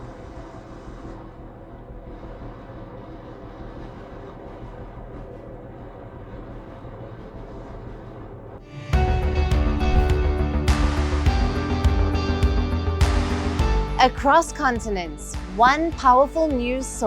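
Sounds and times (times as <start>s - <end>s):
low rumble: 9.6s - 10.6s.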